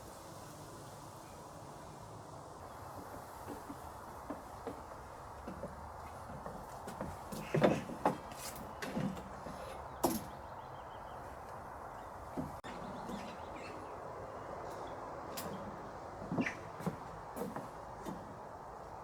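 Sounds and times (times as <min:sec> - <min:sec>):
knocks and thumps of handling: 0:05.5 - 0:10.4.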